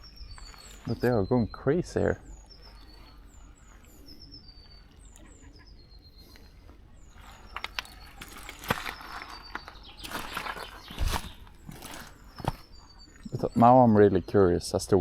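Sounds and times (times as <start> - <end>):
rustling: 0.0 - 1.4, 6.3 - 13.4
small birds whistling: 0.0 - 15.0.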